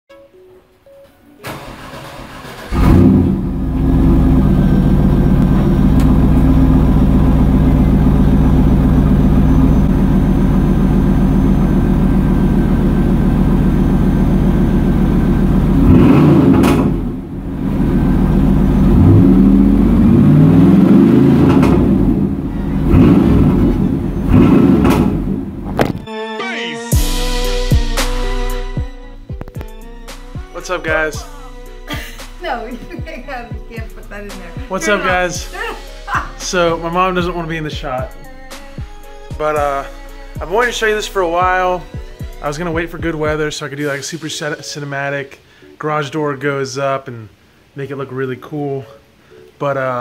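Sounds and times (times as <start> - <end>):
car starter cranking: 1.4 - 26.0
car engine idling and revving: 1.5 - 26.0.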